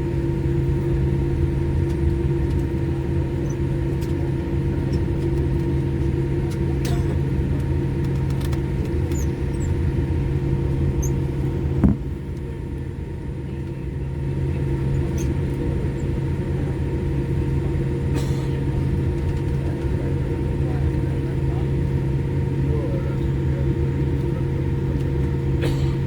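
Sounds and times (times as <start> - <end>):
aircraft cabin hum: 0.1 - 26.0
thump: 11.8 - 12.1.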